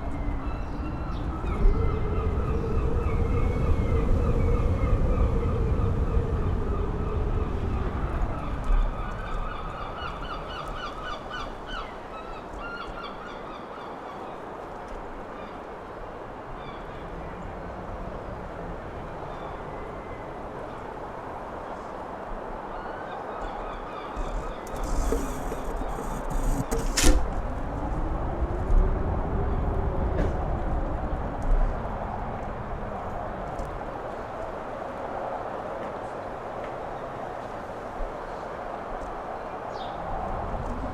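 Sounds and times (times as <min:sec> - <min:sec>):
wind buffeting microphone: 0:00.0 - 0:40.9
birds calling: 0:22.8 - 0:27.0.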